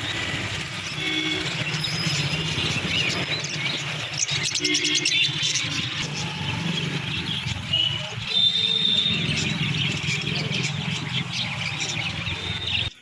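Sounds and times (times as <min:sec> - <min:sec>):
small birds chirping: 0:00.0 - 0:13.0
bird whistles: 0:01.0 - 0:13.0.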